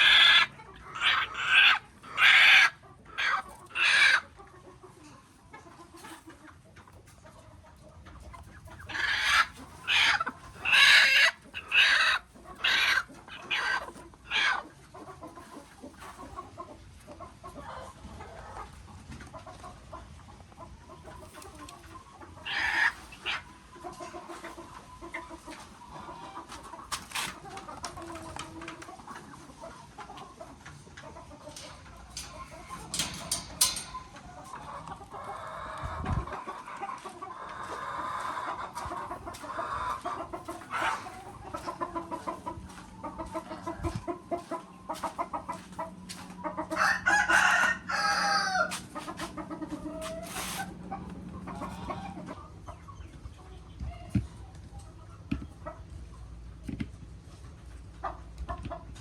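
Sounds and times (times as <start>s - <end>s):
chickens clucking: 0.0s - 59.0s
rooster crowing: 46.7s - 48.8s.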